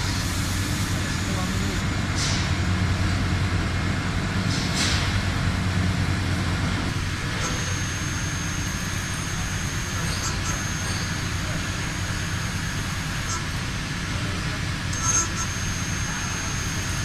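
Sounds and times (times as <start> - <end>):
heavy machinery humming: 0.0 - 17.0
thin high whine: 7.1 - 13.8, 14.9 - 17.0.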